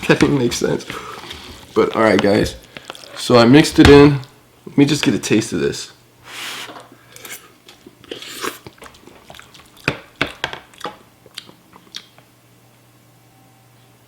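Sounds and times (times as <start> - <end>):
person chewing noodles: 7.6 - 9.9, 10.7 - 12.2.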